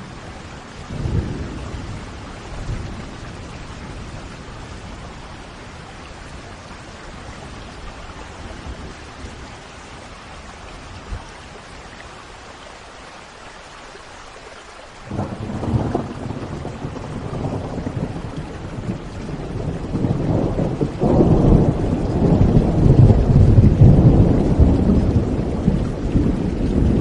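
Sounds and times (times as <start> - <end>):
steady rain: 0.0 - 27.0
thunder rumbling: 0.9 - 10.1, 15.1 - 27.0.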